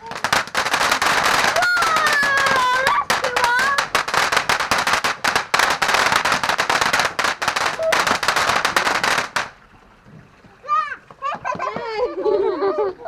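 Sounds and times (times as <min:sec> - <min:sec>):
firework crackling pops: 0:00.0 - 0:09.6
whistling firework: 0:00.0 - 0:09.6.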